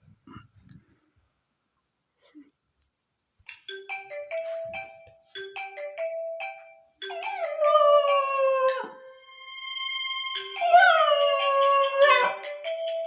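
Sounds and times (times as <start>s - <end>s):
phone alarm chiming tune: 3.7s - 13.0s
dog howling: 7.0s - 9.1s, 10.6s - 12.5s.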